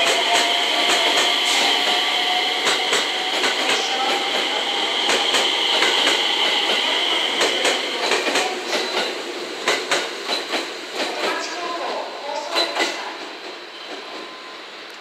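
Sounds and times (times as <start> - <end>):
steady high whine: 0.0 - 9.4
train wheels clacking over rail joints: 0.0 - 11.4.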